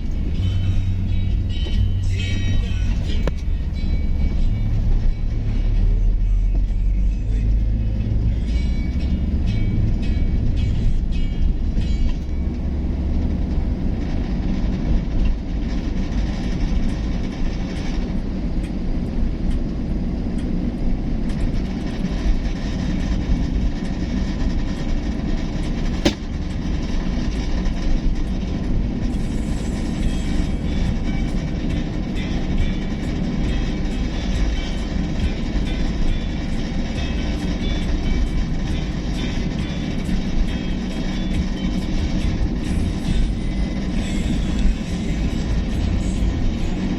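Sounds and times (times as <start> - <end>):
vehicle rumbling on road: 0.0 - 46.9
sharp click: 26.0 - 26.3.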